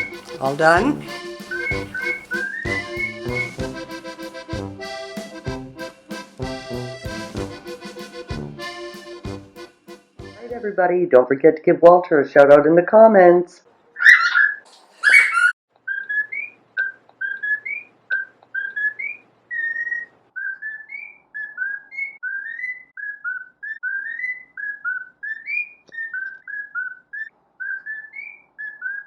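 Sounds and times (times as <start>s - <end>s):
harsh bird squawk: 0.0s - 3.6s, 14.0s - 29.0s
cockatiel whistling chirps: 1.4s - 3.7s, 14.0s - 29.0s.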